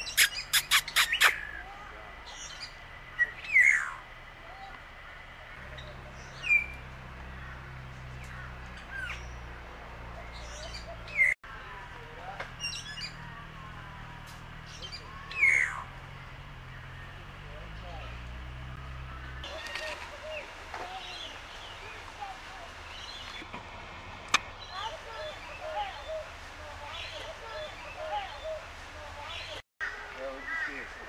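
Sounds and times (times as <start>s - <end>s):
soft bird chirps: 0.0s - 11.4s
birds squawking: 0.0s - 23.5s, 24.5s - 31.0s.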